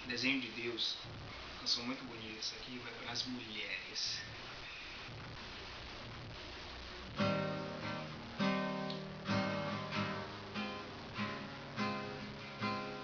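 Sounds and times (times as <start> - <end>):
acoustic guitar strumming chords: 7.0 - 13.0.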